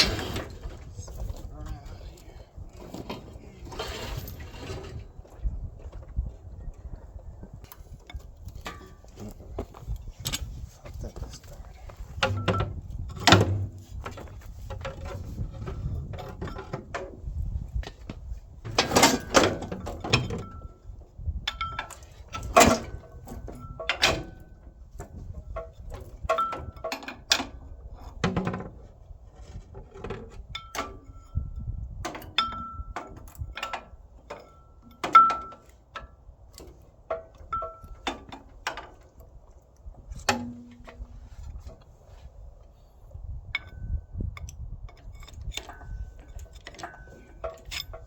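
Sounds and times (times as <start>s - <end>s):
metal clinks and knocks: 0.0s - 42.2s, 43.5s - 48.0s
short metal squeaks: 3.6s - 5.1s.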